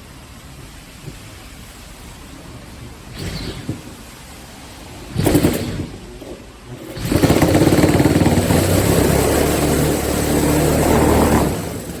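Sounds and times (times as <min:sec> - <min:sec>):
reciprocating saw running: 0:06.8 - 0:12.0.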